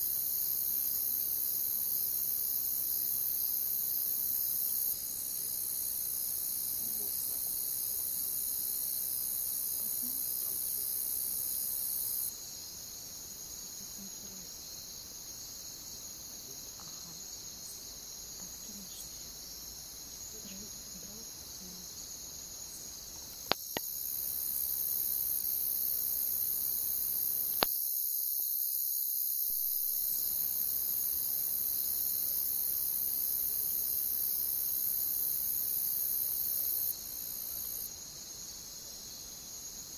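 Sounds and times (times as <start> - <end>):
crickets chirping: 0.0 - 39.9
campfire pops: 23.4 - 23.9.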